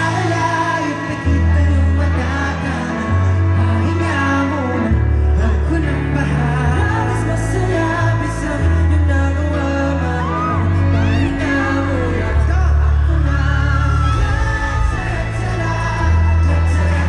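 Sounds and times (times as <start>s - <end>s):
deep bass notes: 0.0s - 17.0s
male vocal group singing a ballad: 0.0s - 17.0s
crowd whooping: 9.6s - 17.0s.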